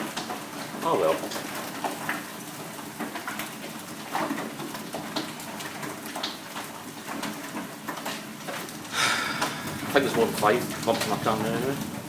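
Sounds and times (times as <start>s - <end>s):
hail hissing down: 6.7s - 12.0s
hailstones knocking on hard surfaces: 7.0s - 12.0s.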